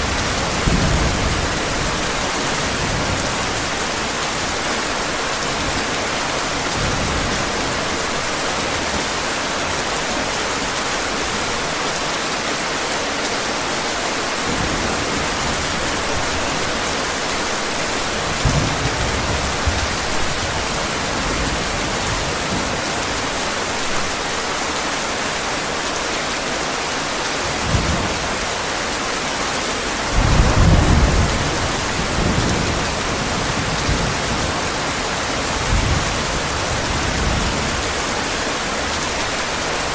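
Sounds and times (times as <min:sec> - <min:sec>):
heavy rain: 0:00.0 - 0:39.9
thunder rumbling: 0:30.0 - 0:37.9.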